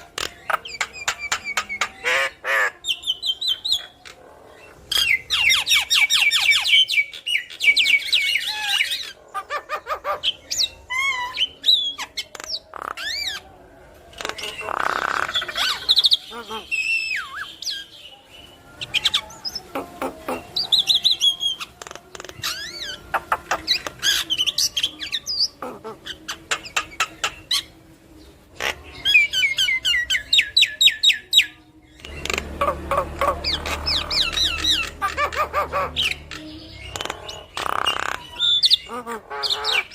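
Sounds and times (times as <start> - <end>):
myna whistling and squawking: 32.0 - 39.9.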